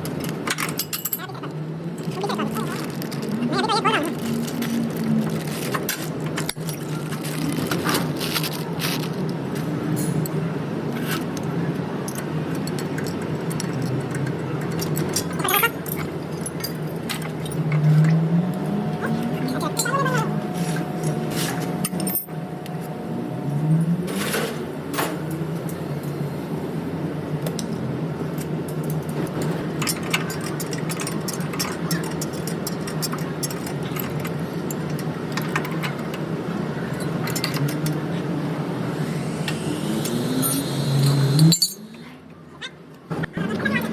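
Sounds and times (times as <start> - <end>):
steady low hum: 36.0 - 42.3
metallic clinks of tools: 40.4 - 42.0.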